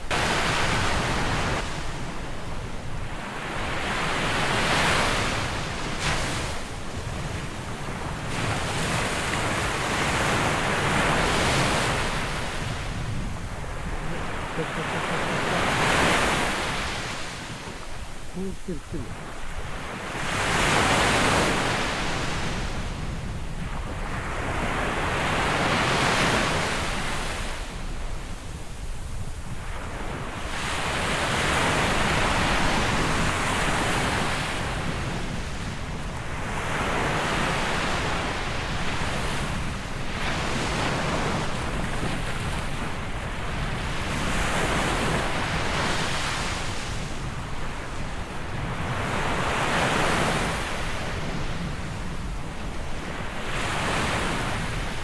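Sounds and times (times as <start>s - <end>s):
wind rumbling on microphone: 3.8s - 25.7s
surf breaking on shore: 7.4s - 23.0s.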